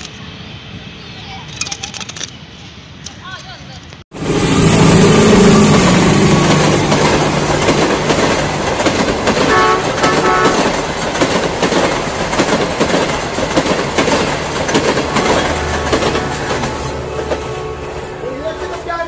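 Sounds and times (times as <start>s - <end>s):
diesel locomotive engine: 4.1s - 19.0s
train wheels clacking over rail joints: 5.0s - 19.0s.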